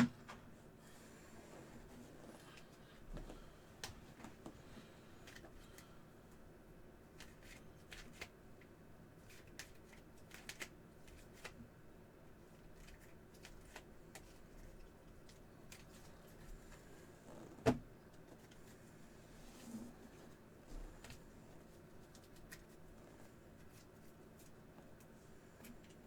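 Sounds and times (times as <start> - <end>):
trading cards clicking and rustling: 9.2 - 11.6.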